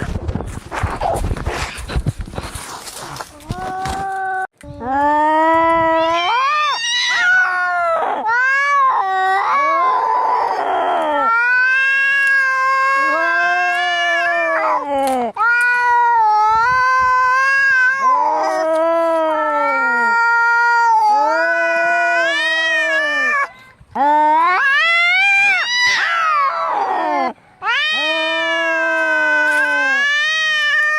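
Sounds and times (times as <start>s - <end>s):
cats yowling: 5.8s - 23.5s, 24.3s - 30.9s
harsh noisy cat outburst: 24.4s - 30.9s.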